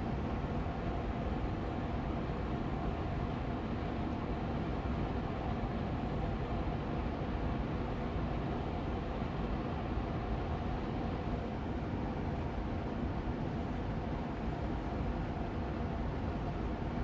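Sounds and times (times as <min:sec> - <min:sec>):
air purifier fan running: 0:00.0 - 0:17.0.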